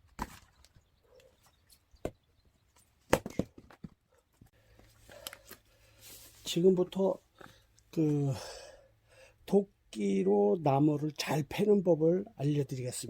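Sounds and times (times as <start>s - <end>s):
axe striking firewood: 3.1s - 3.8s.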